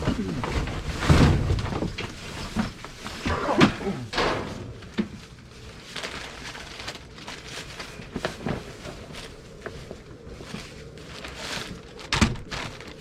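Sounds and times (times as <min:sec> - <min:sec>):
thuds inside metal dumpster: 0:03.3 - 0:05.1.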